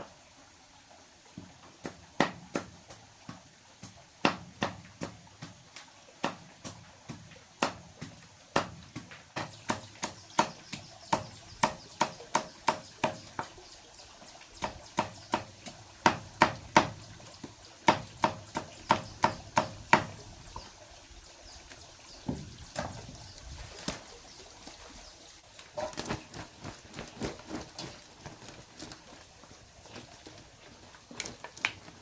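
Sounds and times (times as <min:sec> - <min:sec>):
hand tool striking wood: 0:01.8 - 0:05.6, 0:06.2 - 0:13.6, 0:14.6 - 0:17.0, 0:17.8 - 0:20.2.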